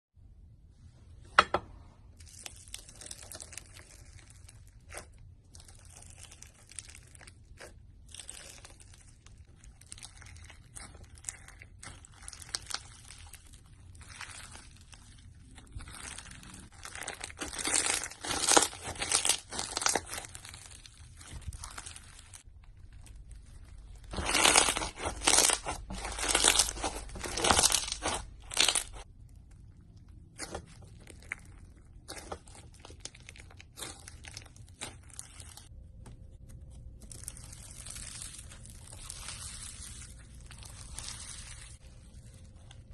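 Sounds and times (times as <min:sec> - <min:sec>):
slime squished by hand: 0:02.2 - 0:36.3.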